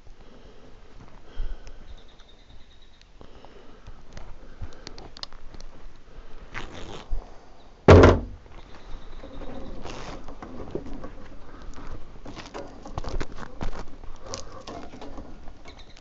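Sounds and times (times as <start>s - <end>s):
small clicks and rustling: 3.8s - 5.8s, 8.6s - 16.0s
heavy thunk: 7.9s - 8.5s.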